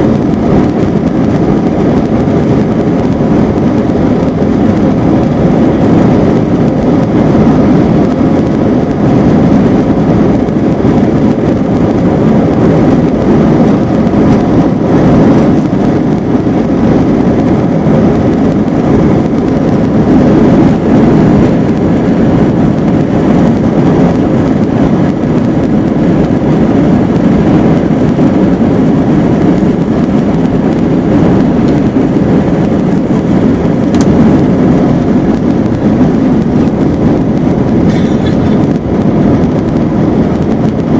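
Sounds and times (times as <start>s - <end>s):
jet engines rumbling in cabin: 0.0s - 40.9s.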